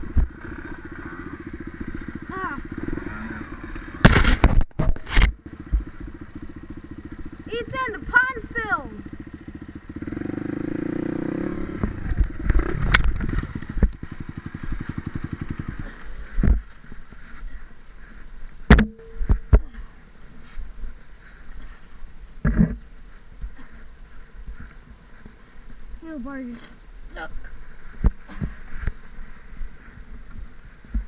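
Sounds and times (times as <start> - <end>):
sharp thumps: 0.0 - 17.2, 18.6 - 19.7
dirt bike engine revving: 0.0 - 31.0.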